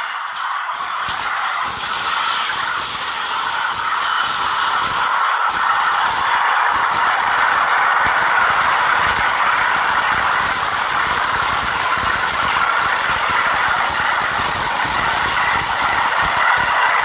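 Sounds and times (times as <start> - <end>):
train running noise: 0.0 - 17.0
train wheels squealing on rails: 0.0 - 17.0.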